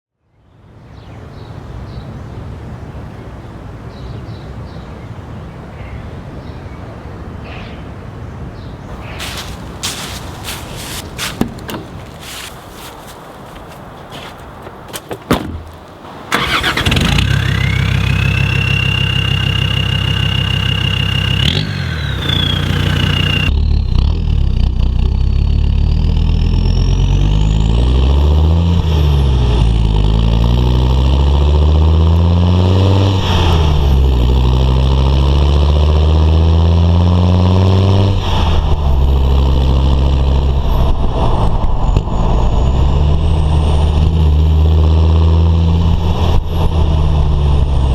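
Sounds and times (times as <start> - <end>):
diesel engine starting and revving: 8.9 - 13.0, 16.2 - 47.9.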